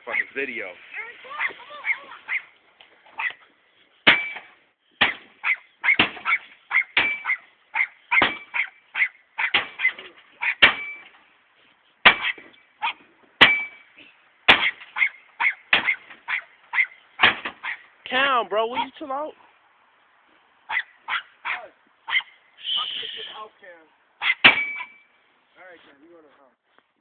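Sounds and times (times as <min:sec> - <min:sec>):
metallic ring: 0:24.5 - 0:25.2.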